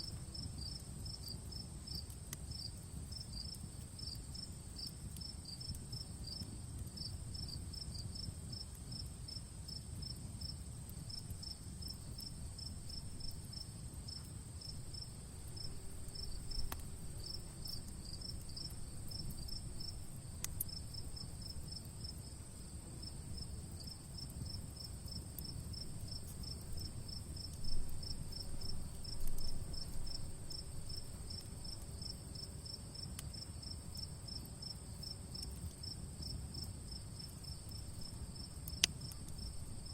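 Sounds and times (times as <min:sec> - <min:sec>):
campfire crackling: 0:00.0 - 0:39.9
crickets chirping: 0:00.0 - 0:39.9
high insect trill: 0:10.4 - 0:35.2.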